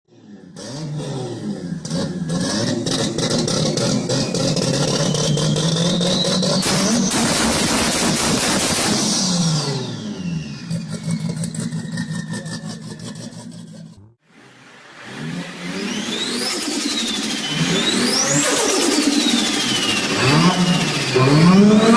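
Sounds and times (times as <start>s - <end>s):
car engine revving hard: 0.5s - 11.6s, 15.0s - 21.9s.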